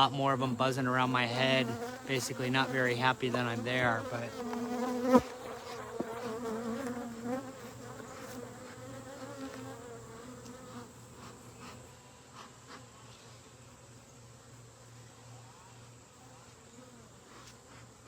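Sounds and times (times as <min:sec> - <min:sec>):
bees buzzing: 0:00.0 - 0:11.8.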